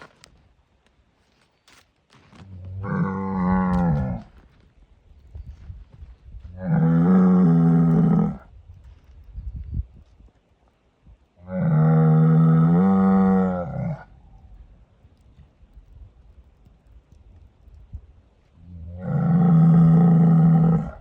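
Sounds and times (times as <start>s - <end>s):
bull bellowing: 2.6s - 4.3s, 6.5s - 8.5s, 11.4s - 14.1s, 18.7s - 21.0s.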